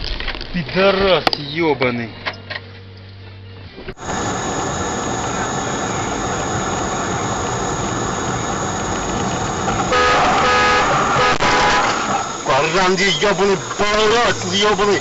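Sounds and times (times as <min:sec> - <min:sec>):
car road and engine noise: 0:00.0 - 0:15.0
pulsing pitched sound: 0:04.0 - 0:14.1.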